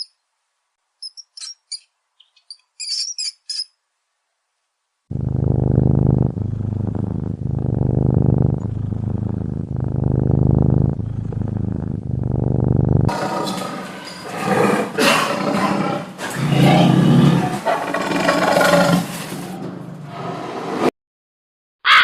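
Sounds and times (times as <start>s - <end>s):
low throbbing animal call: 5.1s - 14.4s.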